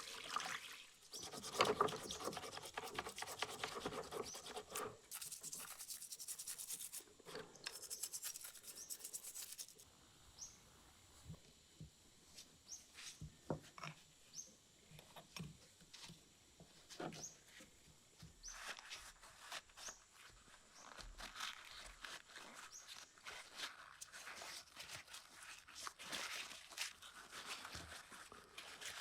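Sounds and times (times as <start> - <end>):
scrubbing on metal: 1.1 - 7.0, 7.6 - 9.8.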